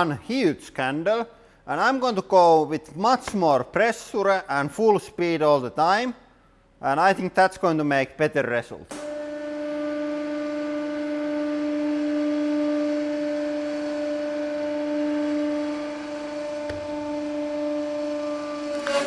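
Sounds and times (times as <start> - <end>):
hydraulic pump humming: 8.9 - 19.0.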